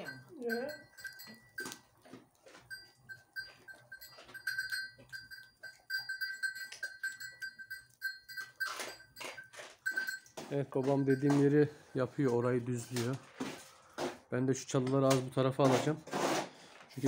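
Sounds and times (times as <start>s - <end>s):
small metal bell clinking: 0.0s - 11.8s.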